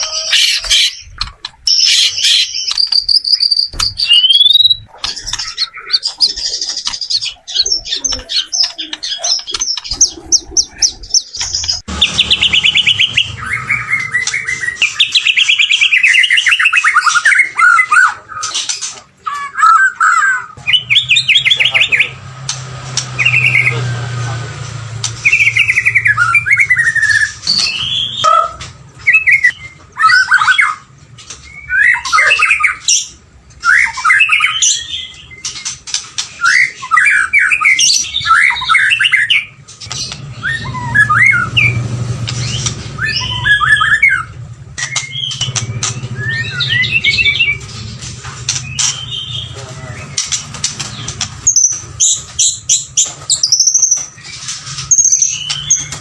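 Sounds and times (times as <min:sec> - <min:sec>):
bird singing whistled phrases: 0:01.7 - 0:06.3, 0:25.2 - 0:30.8, 0:31.5 - 0:35.4, 0:36.4 - 0:39.6, 0:40.4 - 0:41.8, 0:43.0 - 0:47.6.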